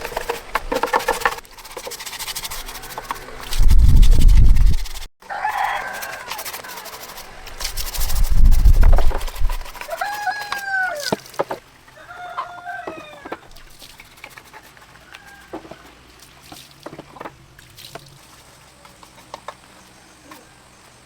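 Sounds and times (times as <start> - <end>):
rooster crowing: 5.2 - 6.9, 9.8 - 11.2, 11.9 - 13.5, 15.0 - 16.0.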